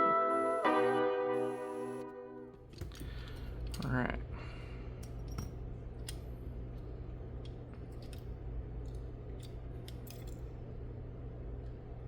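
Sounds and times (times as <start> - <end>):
steady low hum: 0.0 - 12.0
light clicks and taps of parts: 5.0 - 10.5.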